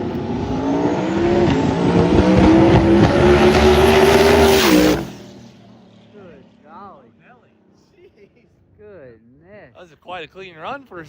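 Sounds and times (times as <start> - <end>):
race car engine at full throttle: 0.0 - 7.8.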